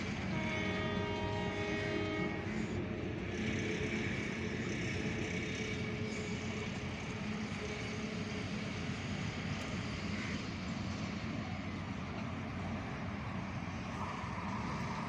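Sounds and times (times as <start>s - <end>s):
faint high train horn tone: 0.0s - 9.1s, 9.8s - 12.3s
distant train rumble: 0.0s - 15.0s.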